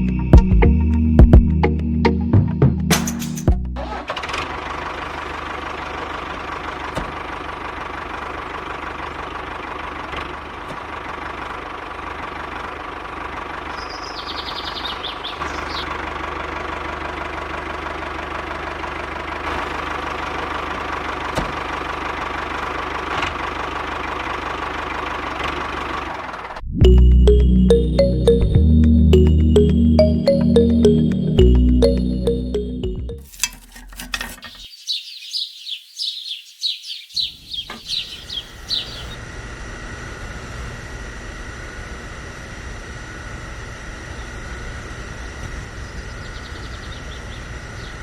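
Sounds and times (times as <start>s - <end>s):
high chirp: 26.8s - 33.3s.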